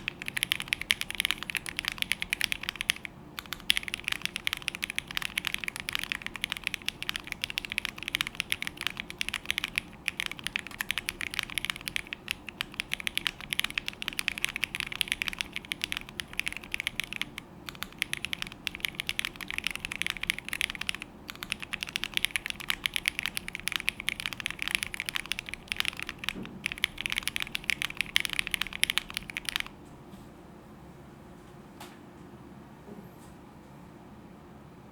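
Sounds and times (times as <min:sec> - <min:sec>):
mechanical keyboard typing clacks: 0:00.0 - 0:29.8.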